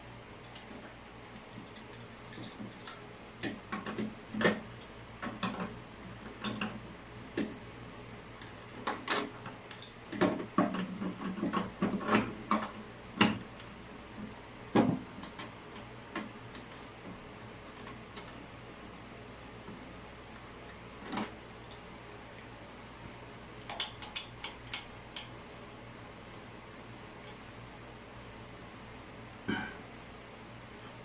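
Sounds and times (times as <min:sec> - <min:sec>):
plumbing fittings clicking and knocking: 0:23.7 - 0:25.3.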